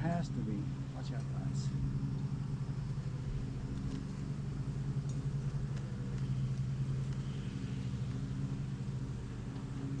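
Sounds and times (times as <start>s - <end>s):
honeybees humming: 0.0s - 10.0s.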